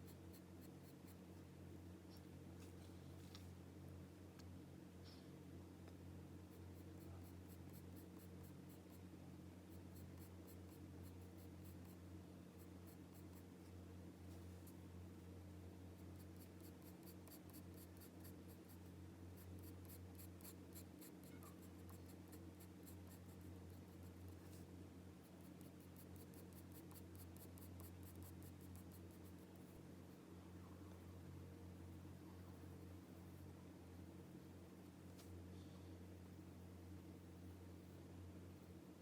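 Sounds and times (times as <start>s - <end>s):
pencil scratching on paper: 0.0s - 1.2s, 6.5s - 9.0s, 9.7s - 12.0s, 12.6s - 13.5s, 16.0s - 18.8s, 19.4s - 29.8s
faint low hum: 0.0s - 39.0s.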